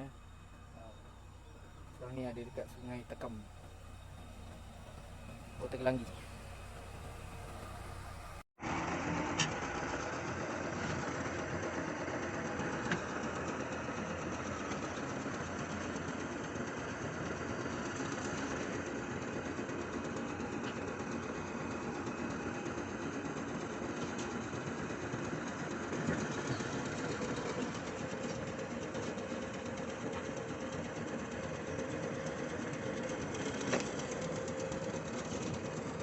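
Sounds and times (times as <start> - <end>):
diesel engine clattering: 0.0 - 8.5, 22.8 - 36.0.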